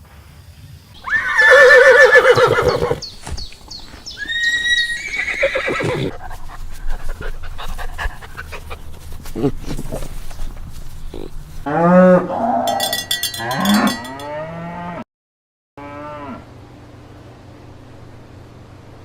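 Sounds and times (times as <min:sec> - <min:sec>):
horse whinnying: 0:01.0 - 0:03.2, 0:04.2 - 0:06.2.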